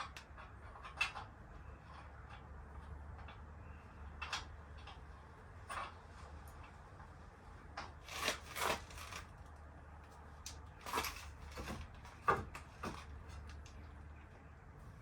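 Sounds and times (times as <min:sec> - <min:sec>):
knocks and clicks of handled tools: 0:10.5 - 0:13.8.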